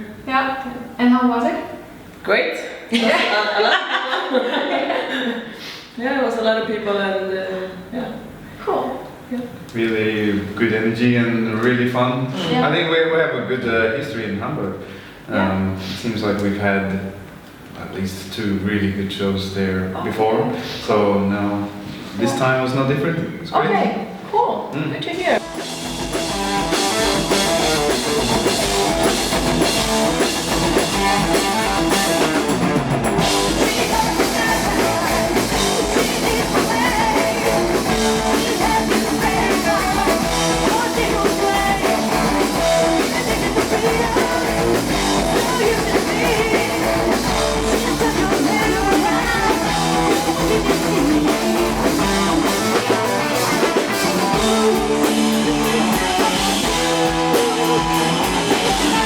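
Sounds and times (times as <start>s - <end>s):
drum kit: 25.2s - 59.0s
distorted electric guitars: 25.4s - 59.0s
person singing: 33.4s - 51.9s, 54.0s - 59.0s.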